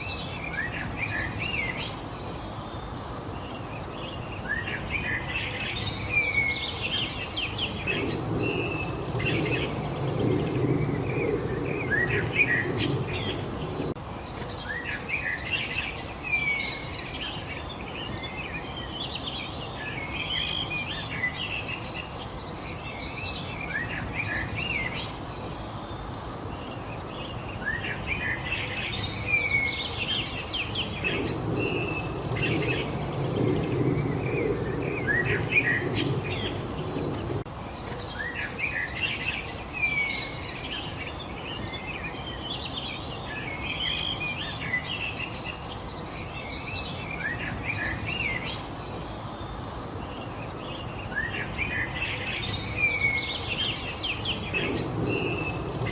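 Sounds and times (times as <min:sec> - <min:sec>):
songbirds chirping and trilling: 0:00.0 - 0:55.9
low rumble: 0:07.7 - 0:14.0, 0:30.8 - 0:37.5.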